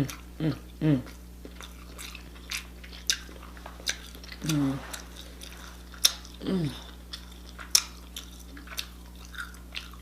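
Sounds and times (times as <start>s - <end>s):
person humming mm: 0.0s - 1.1s, 4.4s - 4.9s, 6.4s - 7.0s
crunching bites and wet chewing: 0.0s - 10.0s.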